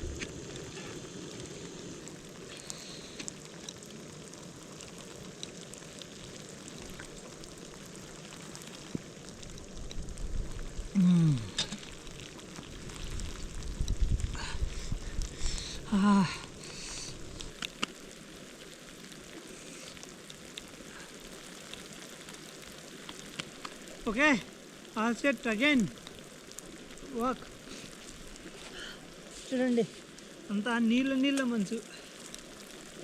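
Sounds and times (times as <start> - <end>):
steady hissing: 0.0 - 33.0
short falling vocal sound: 11.0 - 11.6.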